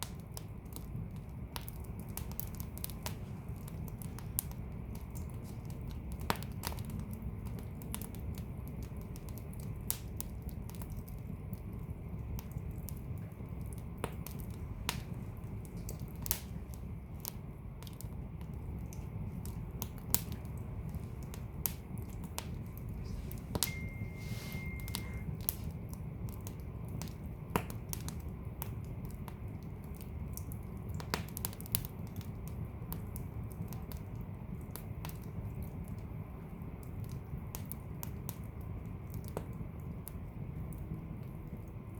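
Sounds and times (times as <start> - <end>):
fire crackling and popping: 0.0 - 41.9
fire rumbling: 0.0 - 41.9
thin high whistle: 23.6 - 25.4.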